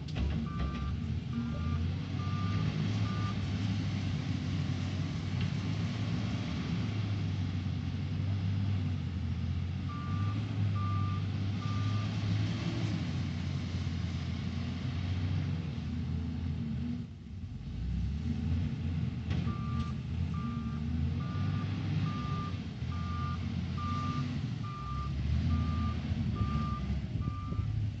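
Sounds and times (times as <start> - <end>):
heavy diesel engine under load: 0.0 - 28.0
reversing alarm beeping: 0.4 - 3.4, 19.5 - 27.7.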